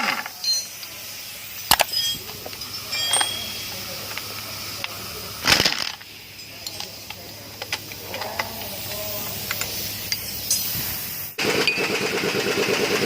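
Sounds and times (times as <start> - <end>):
engine running: 0.0 - 13.0
short hiss: 0.2 - 11.4
tools tapping on metal: 1.7 - 4.3.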